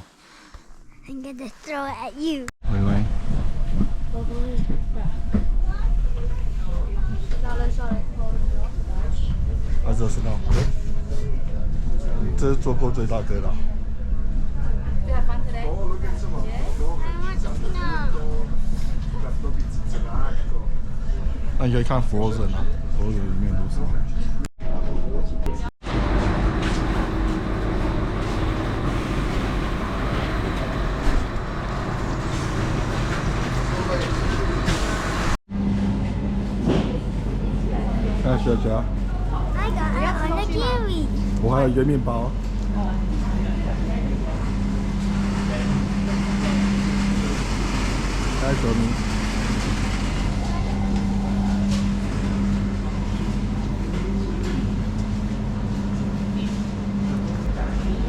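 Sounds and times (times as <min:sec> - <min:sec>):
vehicle rumbling in motion: 0:25.9 - 0:58.0.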